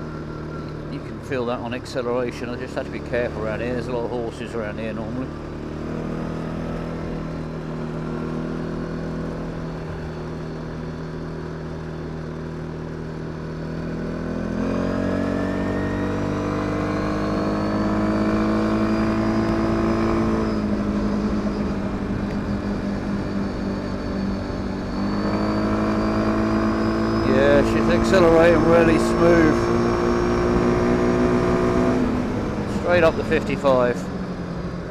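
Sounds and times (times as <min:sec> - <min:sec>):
quad bike engine running: 0:00.0 - 0:34.9.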